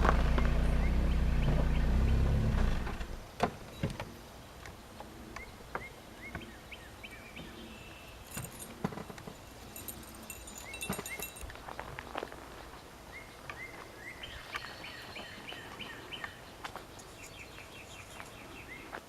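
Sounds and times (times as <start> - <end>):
high jingling: 8.1 - 11.6, 16.9 - 18.6.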